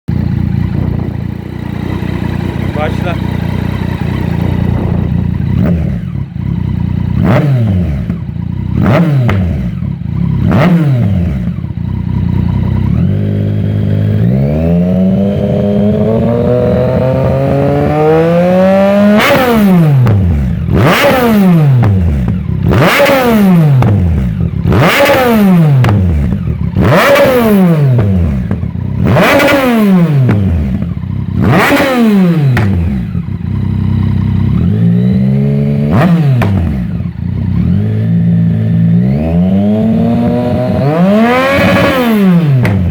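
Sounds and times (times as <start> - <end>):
motorcycle engine revving: 0.1 - 42.9.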